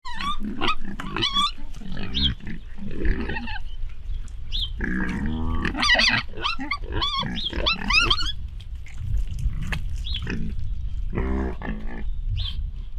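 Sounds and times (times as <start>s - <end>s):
piglets squealing: 0.0s - 3.7s, 4.8s - 8.4s
pig grunt: 0.1s - 3.6s, 4.8s - 8.3s, 9.0s - 12.1s.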